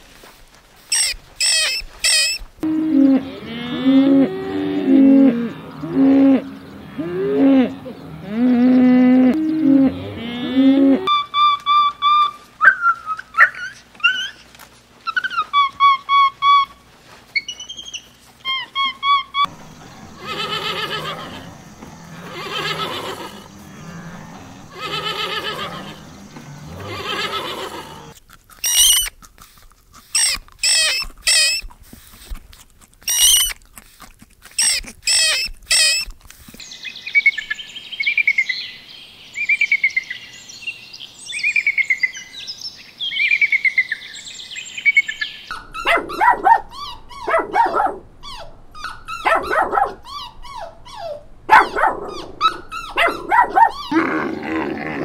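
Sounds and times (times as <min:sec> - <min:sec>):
small dog yelping and whining: 0:00.9 - 0:02.4, 0:11.8 - 0:14.5, 0:15.1 - 0:16.8, 0:26.8 - 0:29.1, 0:30.1 - 0:31.7, 0:33.1 - 0:33.6, 0:34.4 - 0:36.2, 0:45.5 - 0:54.2
otter squeaks: 0:00.9 - 0:02.5, 0:13.4 - 0:29.3, 0:30.0 - 0:32.4, 0:33.0 - 0:36.6
long wavering animal calls: 0:01.0 - 0:14.5, 0:17.4 - 0:29.0.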